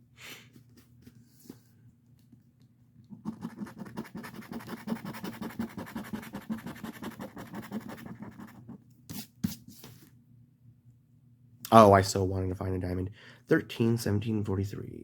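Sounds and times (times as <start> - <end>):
scratching a scratch-off ticket: 3.1 - 9.2.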